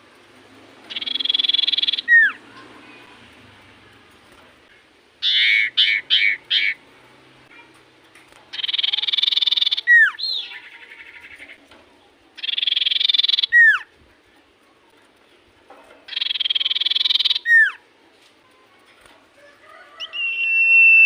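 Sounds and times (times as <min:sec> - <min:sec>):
falling bird whistle: 0:00.9 - 0:02.4, 0:16.1 - 0:17.8, 0:20.0 - 0:21.0
short harsh bird notes: 0:00.9 - 0:02.4, 0:05.2 - 0:06.8, 0:16.1 - 0:17.8.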